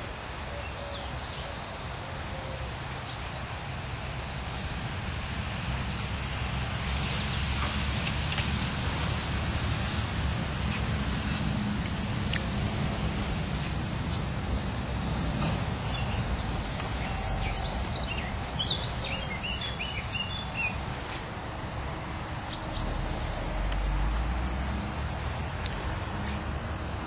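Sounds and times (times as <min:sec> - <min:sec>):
songbird chirping: 0:00.0 - 0:04.8, 0:10.7 - 0:24.8
low outdoor rumble: 0:00.0 - 0:27.0.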